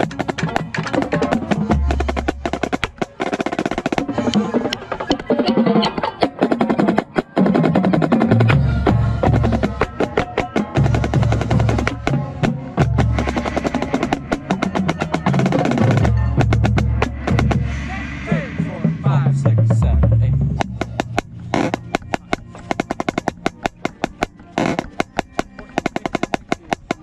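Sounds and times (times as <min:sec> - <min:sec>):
snare drum rolls: 0:00.0 - 0:27.0
low band notes: 0:07.4 - 0:26.8.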